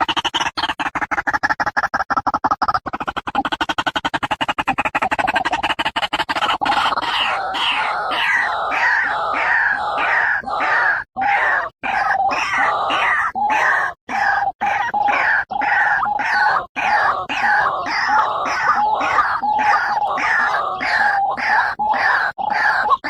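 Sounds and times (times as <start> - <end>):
bird calling: 3.0 - 23.0.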